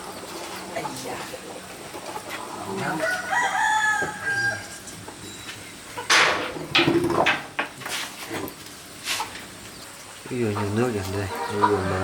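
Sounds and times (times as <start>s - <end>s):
rooster crowing: 2.8s - 4.9s.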